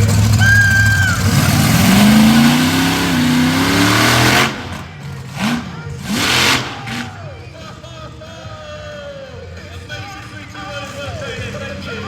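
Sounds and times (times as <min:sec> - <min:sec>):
vehicle engine revving: 0:00.0 - 0:07.5.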